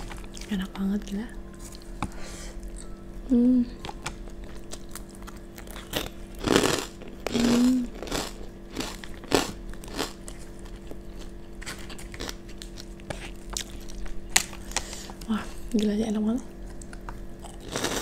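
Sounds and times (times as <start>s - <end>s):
chewing crunchy crackers: 0.0s - 0.6s, 3.9s - 15.9s, 16.6s - 18.0s
person humming: 2.8s - 3.8s, 7.3s - 8.0s.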